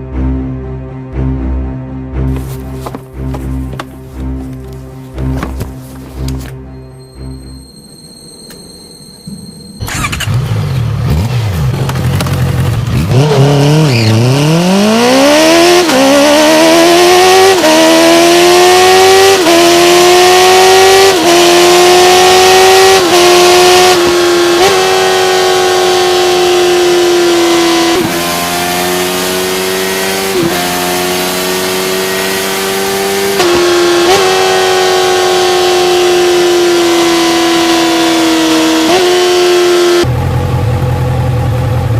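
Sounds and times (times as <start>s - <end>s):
motorcycle engine accelerating: 9.8s - 41.9s.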